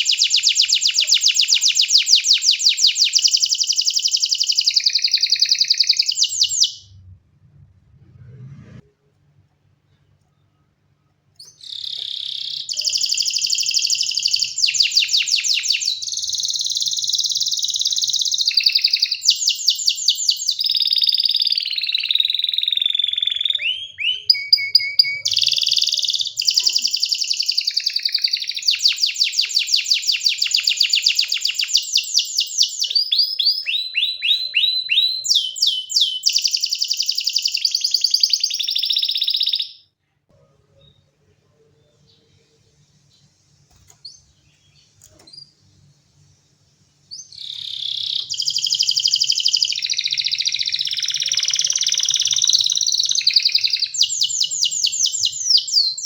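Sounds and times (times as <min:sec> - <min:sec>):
canary singing trills: 0:00.0 - 0:07.0, 0:11.4 - 0:39.9, 0:47.1 - 0:56.0.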